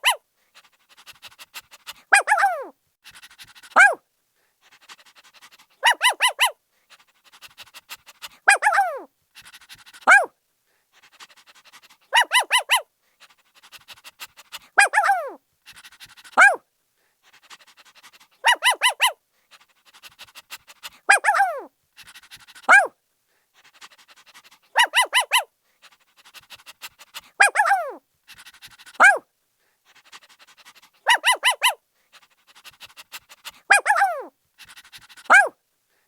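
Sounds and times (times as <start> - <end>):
puppy yapping: 0.0 - 0.2, 2.1 - 2.7, 3.7 - 4.0, 5.8 - 6.6, 8.5 - 9.1, 10.0 - 10.3, 12.1 - 12.8, 14.8 - 15.4, 16.4 - 16.6, 18.4 - 19.2, 21.1 - 21.7, 22.6 - 22.9, 24.4 - 25.5, 27.2 - 28.0, 28.9 - 29.2, 31.0 - 31.8, 33.6 - 34.3, 35.2 - 35.5
puppy panting: 0.0 - 4.0, 4.6 - 10.3, 10.9 - 16.6, 17.2 - 35.6.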